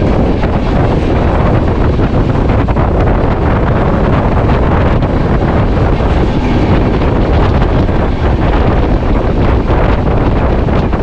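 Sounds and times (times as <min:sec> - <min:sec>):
train rumbling on rails: 0:00.0 - 0:11.0
wind buffeting microphone: 0:00.0 - 0:11.0.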